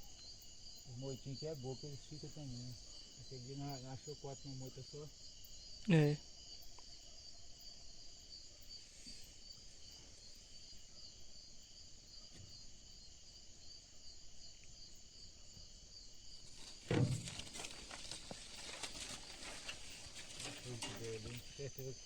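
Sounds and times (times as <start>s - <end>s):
crickets and insects trilling: 0.0s - 22.0s
crackles: 16.4s - 21.9s.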